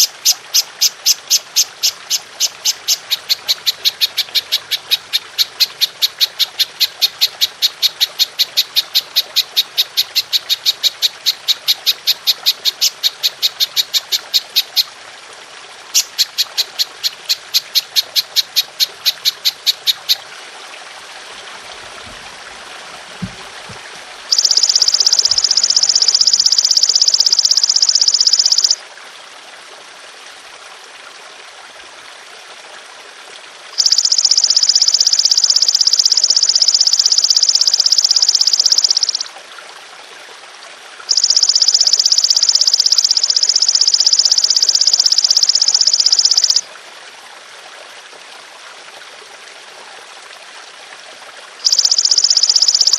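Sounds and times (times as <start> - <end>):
grasshopper chirping and trilling: 0.0 - 14.9, 16.0 - 20.2, 24.3 - 28.8, 33.8 - 39.3, 41.1 - 46.6, 51.6 - 52.9.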